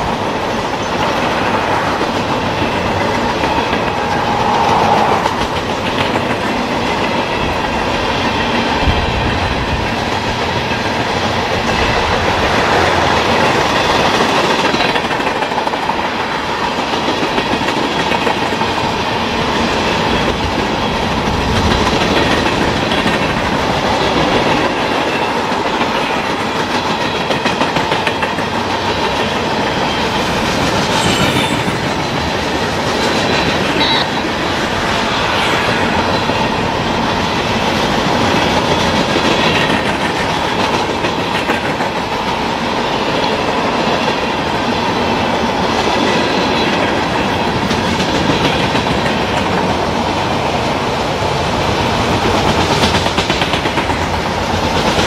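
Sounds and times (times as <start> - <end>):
freight cars rolling past: 0.0 - 15.1, 28.0 - 41.9.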